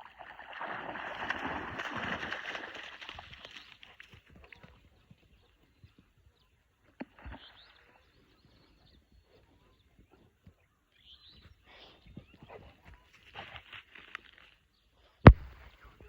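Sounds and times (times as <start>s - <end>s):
faint bird chirps: 3.4s - 13.4s.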